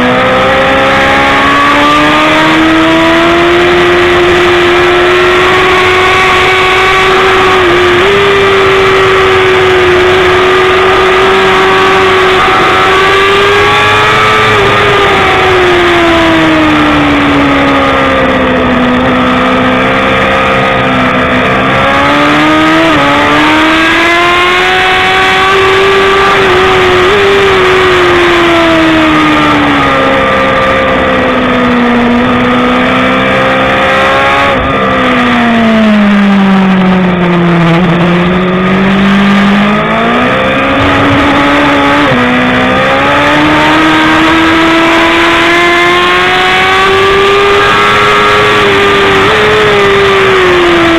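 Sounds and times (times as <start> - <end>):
motorcycle engine revving: 0.0 - 50.9
steady rush of noise: 36.7 - 46.4.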